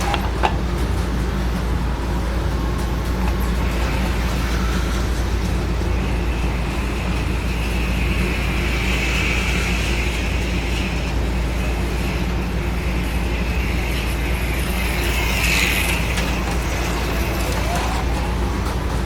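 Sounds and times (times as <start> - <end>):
slot car motors whining: 0.0 - 19.0
steady low hum: 0.0 - 19.0.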